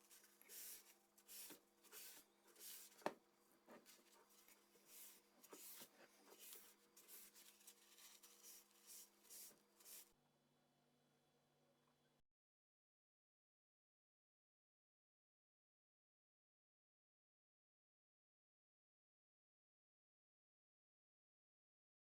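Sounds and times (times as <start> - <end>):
faint rubbing strokes: 0.0 - 10.1.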